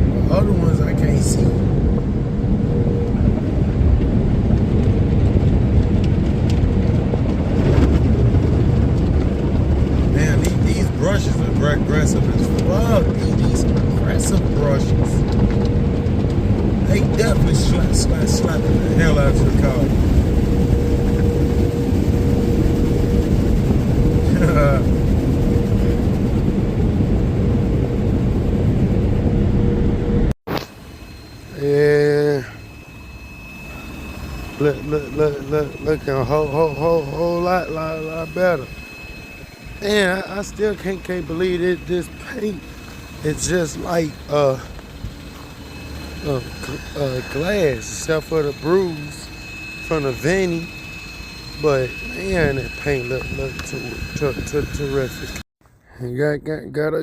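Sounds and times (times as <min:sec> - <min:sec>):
faint hum: 0:00.0 - 0:57.0.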